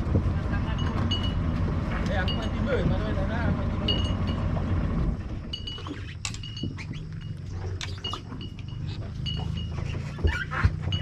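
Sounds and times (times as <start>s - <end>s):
boat engine droning: 0.0s - 11.0s
high squeaky chirps: 5.6s - 11.0s.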